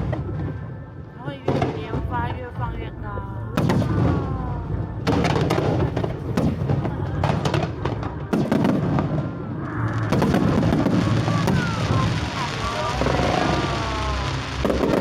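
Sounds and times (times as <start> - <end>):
fireworks crackling: 0.0 - 15.0
fireworks bangs: 3.5 - 15.0.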